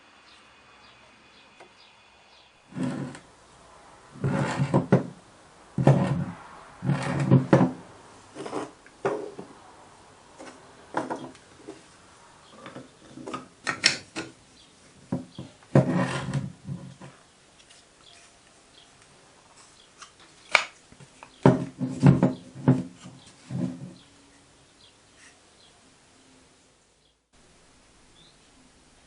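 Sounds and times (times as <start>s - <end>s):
scraping and rubbing strokes: 2.7s - 3.3s, 4.1s - 5.2s, 5.8s - 8.8s, 15.4s - 18.6s, 21.6s - 24.1s.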